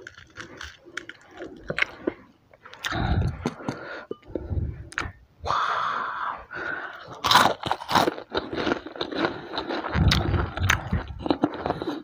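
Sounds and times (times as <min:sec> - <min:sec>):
crunchy biting and chewing: 0:00.0 - 0:03.8, 0:07.0 - 0:12.0.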